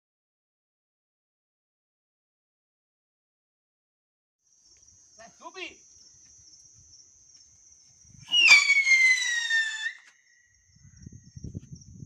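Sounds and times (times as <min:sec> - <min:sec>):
firework whistle sliding down: 0:08.2 - 0:10.2.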